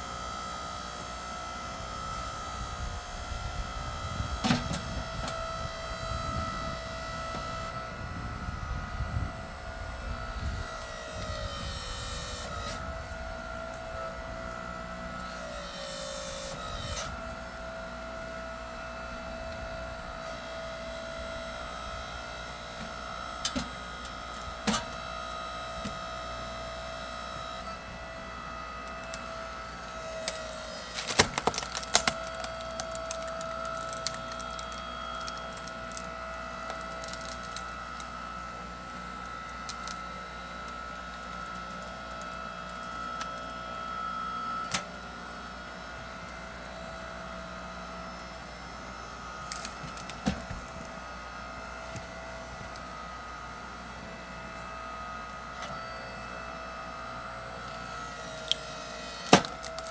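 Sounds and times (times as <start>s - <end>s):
log splitter whining: 0.0s - 59.9s
logs splitting with cracks: 29.0s - 38.2s, 49.4s - 51.0s, 57.7s - 59.9s.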